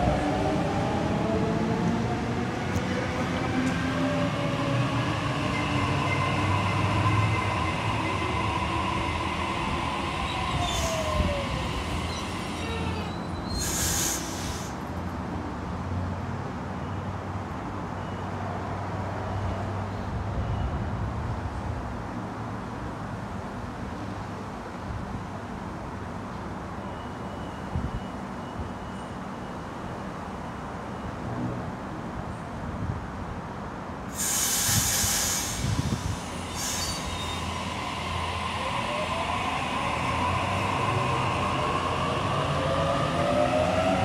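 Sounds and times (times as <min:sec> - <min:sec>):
electric train rumbling past: 0:00.0 - 0:15.1, 0:34.1 - 0:44.0
train wheel squeal: 0:05.4 - 0:14.6, 0:34.2 - 0:42.7
short hisses: 0:13.5 - 0:14.8, 0:34.2 - 0:37.5.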